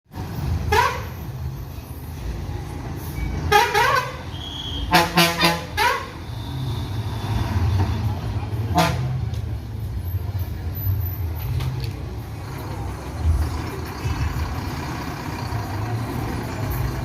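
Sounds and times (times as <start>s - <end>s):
bus horn tooting: 0.6s - 1.3s, 3.4s - 7.9s, 8.7s - 9.2s
low engine rumble: 7.6s - 17.0s.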